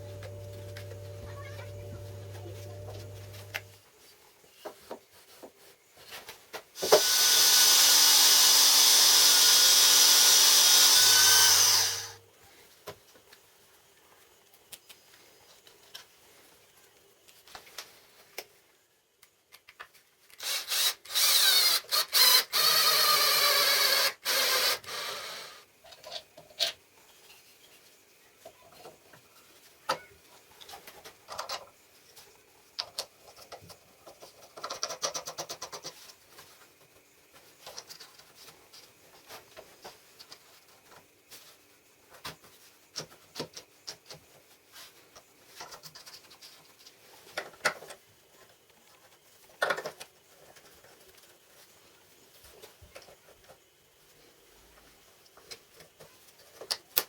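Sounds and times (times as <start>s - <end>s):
power tool running: 0.0s - 3.7s, 6.8s - 12.2s
parts clicking and knocking: 49.5s - 50.7s.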